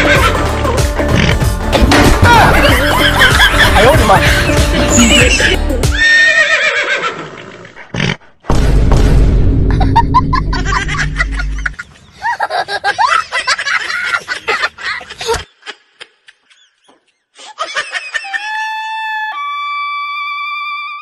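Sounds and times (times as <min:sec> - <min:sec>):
people giggling and snickering: 0:02.3 - 0:05.6, 0:09.7 - 0:16.8.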